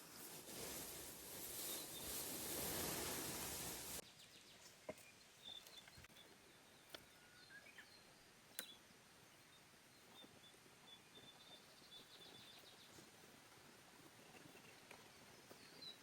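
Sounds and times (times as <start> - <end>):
steady hiss: 0.0 - 4.2
faint bird chirps: 4.0 - 13.2, 14.1 - 16.0.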